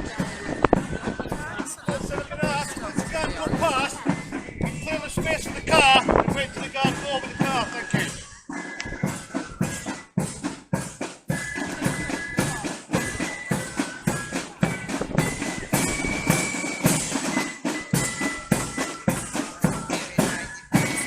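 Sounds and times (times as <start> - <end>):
side drums and bass drum: 0.0 - 8.2, 8.8 - 21.0
fifes playing melody: 0.0 - 21.0.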